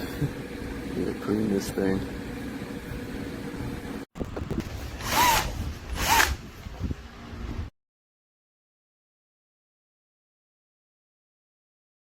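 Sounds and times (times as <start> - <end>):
power tool motor whirring: 4.6 - 6.5.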